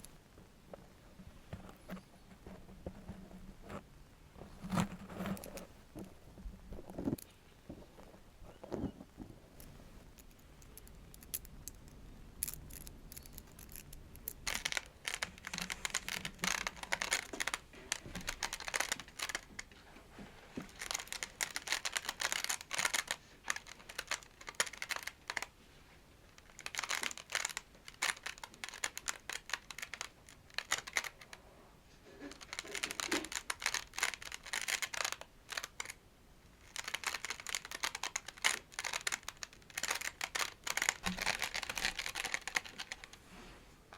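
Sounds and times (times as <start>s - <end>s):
scratching on a toy plate: 1.6s - 6.1s, 12.4s - 19.8s, 32.1s - 36.0s, 36.6s - 43.2s.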